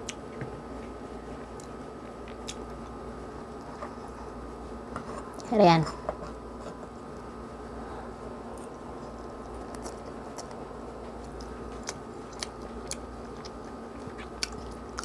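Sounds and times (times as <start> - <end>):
steady background hum: 0.0 - 15.0
person chewing noodles: 1.3 - 3.0, 8.5 - 15.0.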